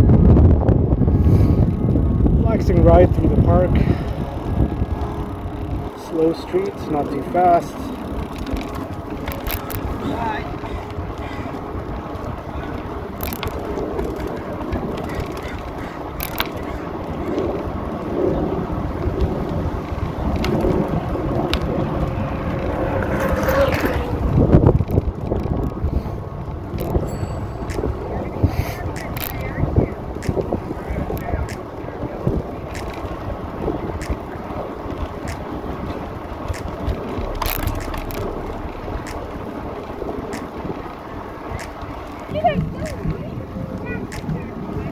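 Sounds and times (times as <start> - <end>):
bicycle tyre noise: 0.0 - 44.9
wind on the microphone: 0.0 - 44.9
sharp clicks and knocks: 36.5 - 41.0.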